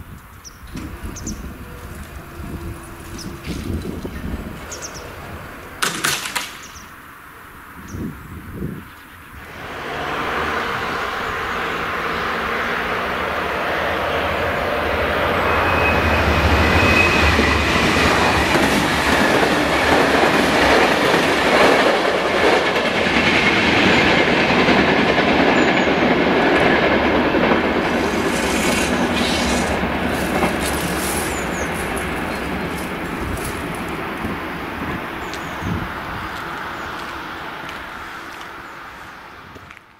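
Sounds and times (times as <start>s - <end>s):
train wheels rumbling on rails: 0.2s - 6.8s, 9.4s - 39.7s
wheels clicking over rail joints: 0.2s - 6.8s, 17.4s - 34.3s
diesel train engine running: 0.8s - 5.8s, 9.4s - 38.5s
high wheel squeal: 14.0s - 18.5s, 27.9s - 32.5s.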